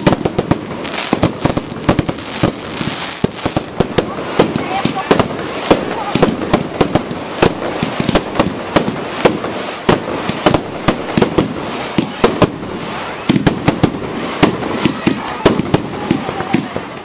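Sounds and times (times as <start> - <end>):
background hiss: 0.0 - 17.0
fireworks bangs and cracks: 0.0 - 17.0.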